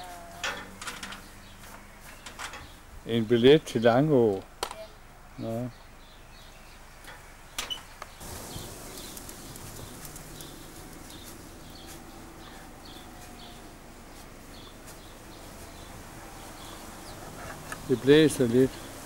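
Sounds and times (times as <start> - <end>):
bird chirping: 4.8 - 19.0.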